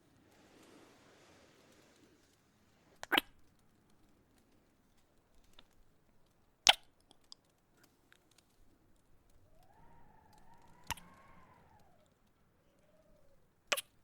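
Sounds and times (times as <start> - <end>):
mouth clicks: 3.0 - 3.5, 6.6 - 7.5, 9.2 - 14.0.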